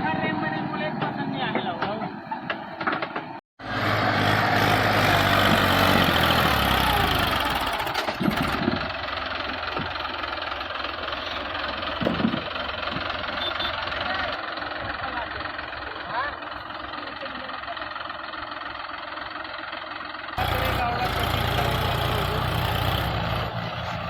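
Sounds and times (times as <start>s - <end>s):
diesel tractor engine running: 0.0s - 24.0s.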